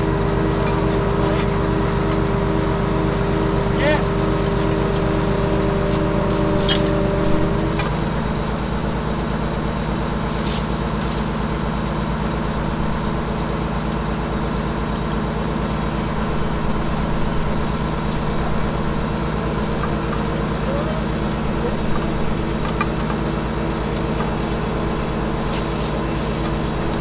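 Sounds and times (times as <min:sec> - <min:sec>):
vehicle engine low throb: 0:00.0 - 0:10.2.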